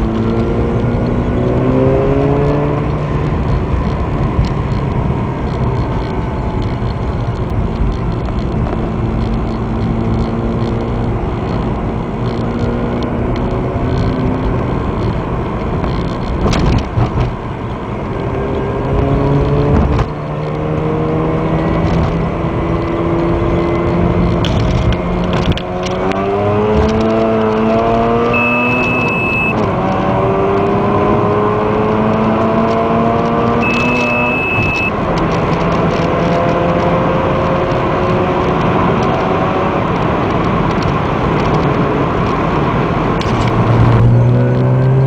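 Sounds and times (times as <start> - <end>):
road noise: 0.0 - 45.0
rotary engine accelerating: 0.0 - 45.0.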